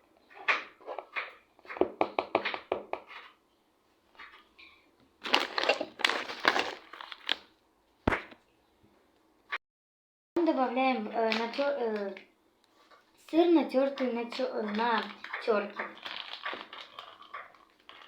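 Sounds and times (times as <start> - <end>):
rustling and scraping: 3.0 - 7.4, 12.7 - 13.2.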